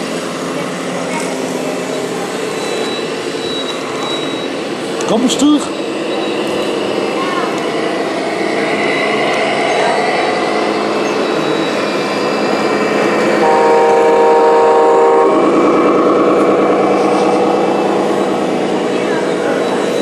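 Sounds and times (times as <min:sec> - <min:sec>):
busy background noise: 0:00.0 - 0:20.0
truck air horn blast: 0:13.4 - 0:15.6.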